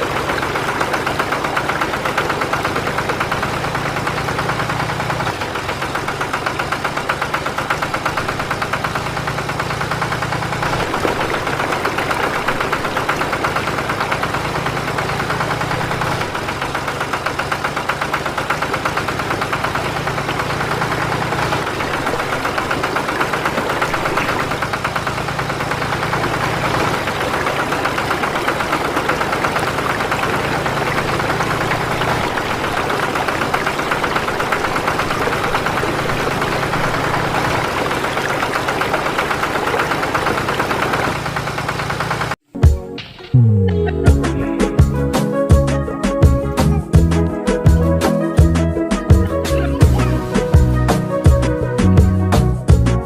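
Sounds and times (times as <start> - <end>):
small motor rattling buzz: 0.0 - 42.4.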